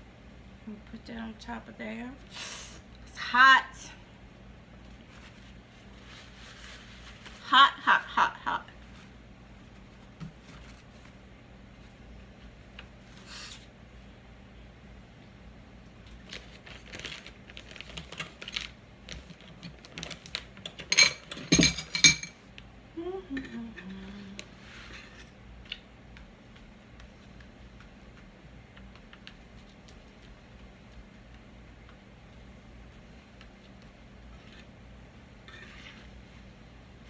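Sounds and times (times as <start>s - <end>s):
metal utensils clinking on cookware: 20.8s - 22.4s.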